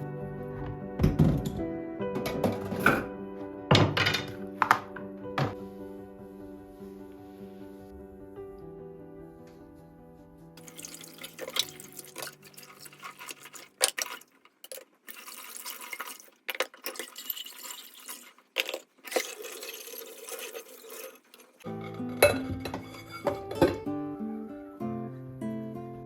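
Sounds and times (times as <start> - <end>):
water running and splashing: 10.6 - 21.6.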